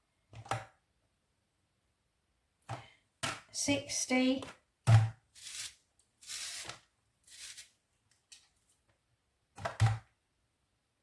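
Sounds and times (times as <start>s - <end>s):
food rustling and scraping: 5.3s - 7.8s.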